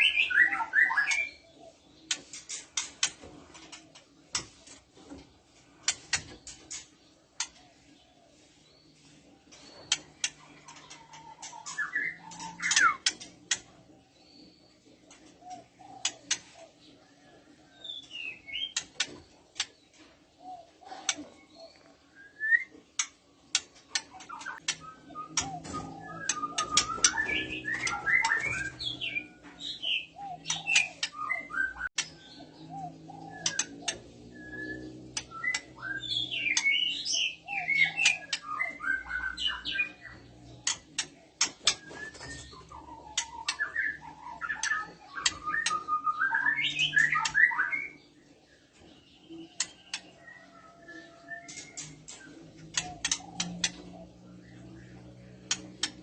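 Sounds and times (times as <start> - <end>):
sharp ticking clicks: 33.4 - 34.0, 51.5 - 53.8, 55.4 - 56.0.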